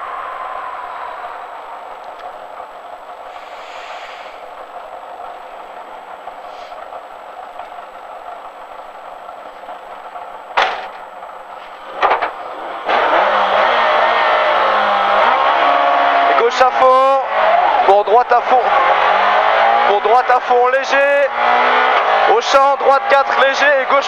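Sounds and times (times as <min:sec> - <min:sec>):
rally car engine idling and revving: 0:00.2 - 0:24.0
sharp knocks: 0:10.6 - 0:11.0.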